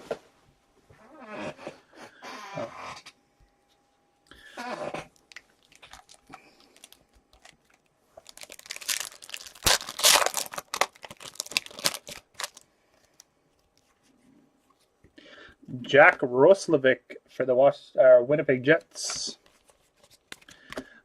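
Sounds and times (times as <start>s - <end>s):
foil wrapper tearing and crinkling: 5.2s - 13.2s.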